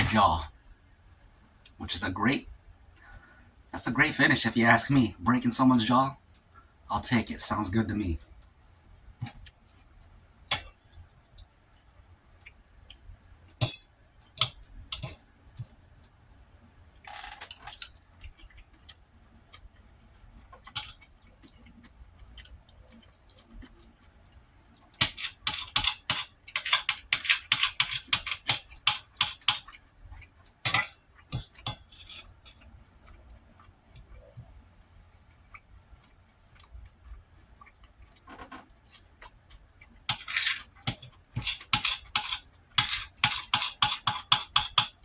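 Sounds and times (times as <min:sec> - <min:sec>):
utensils clinking on a dish: 0:25.0 - 0:29.7, 0:30.7 - 0:32.6, 0:40.1 - 0:45.0.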